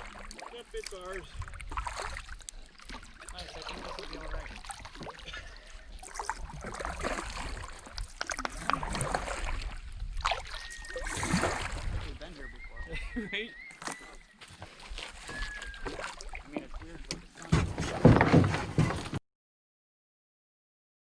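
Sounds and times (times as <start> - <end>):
water splashes and drips: 0.0 - 12.4, 14.6 - 18.2
paddles pulling through water: 0.0 - 19.2
wind rumble on microphone: 7.5 - 13.2.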